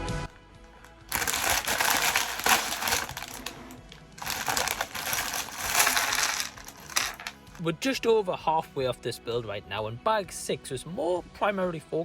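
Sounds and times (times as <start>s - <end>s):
plastic bag crinkling: 0.7s - 7.6s.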